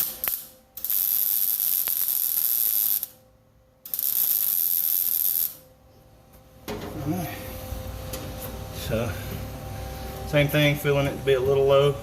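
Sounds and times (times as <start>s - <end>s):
arc welder welding: 0.0s - 3.2s, 3.8s - 5.7s.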